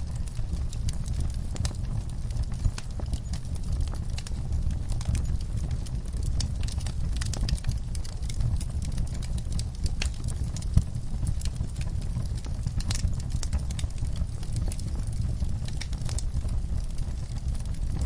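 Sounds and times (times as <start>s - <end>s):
steady low rumble: 0.0s - 18.0s
wood fire crackling and popping: 0.0s - 18.0s.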